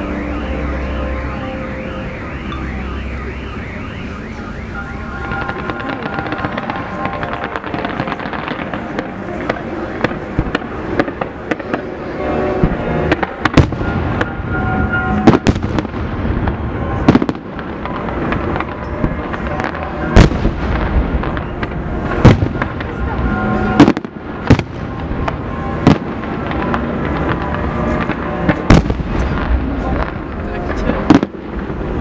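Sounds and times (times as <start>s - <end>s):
fireworks crackling: 0.0s - 32.0s
sharp firework bangs: 5.2s - 32.0s.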